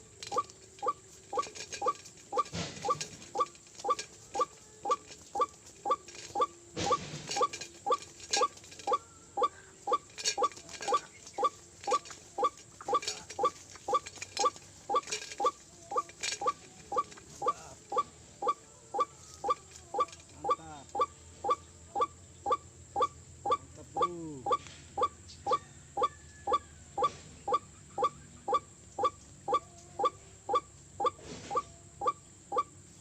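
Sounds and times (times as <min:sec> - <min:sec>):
waterhen calling: 0:00.0 - 0:32.7.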